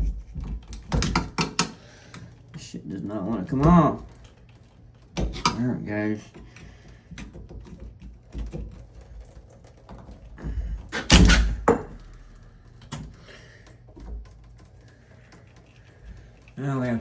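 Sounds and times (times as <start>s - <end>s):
small clicks and handling noises: 12.0s - 17.0s.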